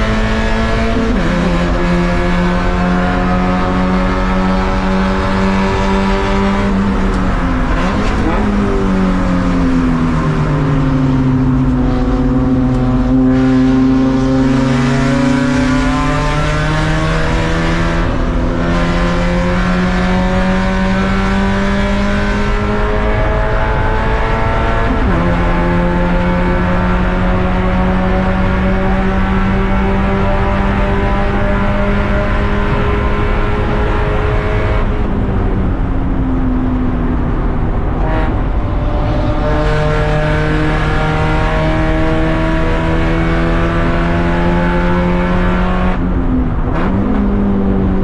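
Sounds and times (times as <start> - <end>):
race car engine revving: 0.0 - 48.0.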